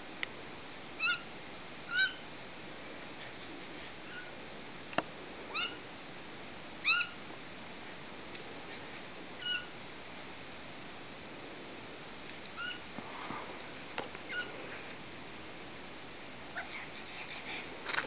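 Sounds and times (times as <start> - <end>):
garden sprinkler hissing: 0.0 - 18.0
short high bird calls: 1.0 - 1.3, 1.9 - 2.3, 4.1 - 4.4, 5.5 - 5.8, 6.8 - 7.2, 9.4 - 9.8, 12.6 - 12.9, 14.3 - 14.6.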